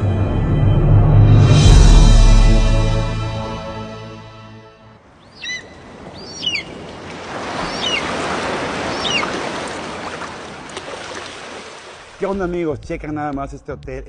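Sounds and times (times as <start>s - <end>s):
bird chirping: 5.2s - 6.9s, 7.6s - 8.2s, 8.8s - 9.4s.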